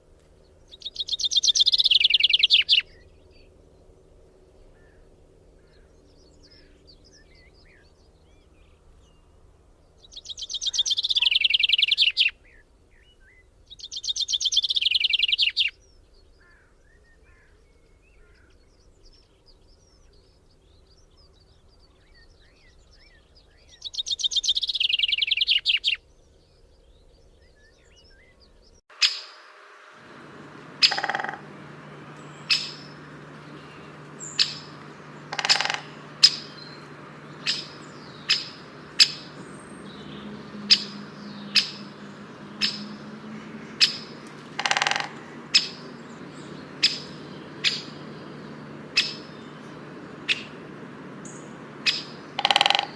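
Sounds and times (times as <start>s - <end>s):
songbird trills: 0.4s - 5.0s, 5.6s - 52.9s
faint bird chirps: 10.0s - 52.9s
sharp bird chip calls: 28.9s - 52.9s.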